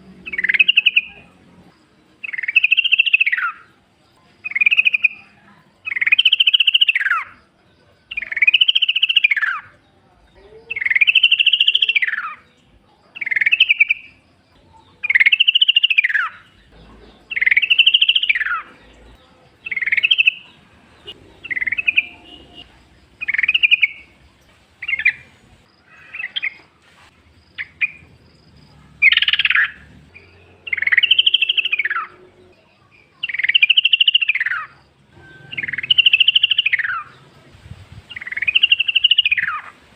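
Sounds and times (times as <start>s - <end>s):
bulbul singing: 0.0s - 26.7s, 27.4s - 39.8s.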